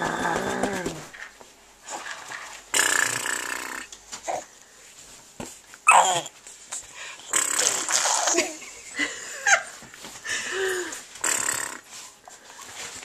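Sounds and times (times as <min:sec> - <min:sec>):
baby squealing and cooing: 0:05.8 - 0:06.3.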